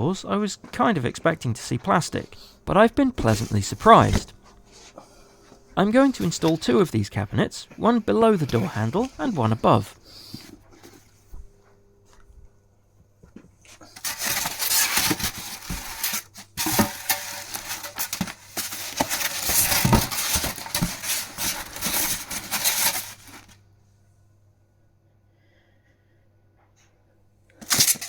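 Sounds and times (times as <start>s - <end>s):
furniture parts and packaging handled: 0.7s - 12.4s, 13.6s - 23.6s, 27.6s - 28.0s.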